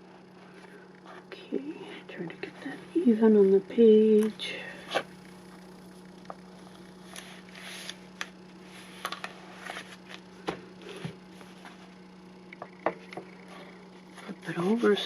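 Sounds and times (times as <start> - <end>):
steady low hum: 0.0 - 15.0
paper rustling: 7.0 - 10.2.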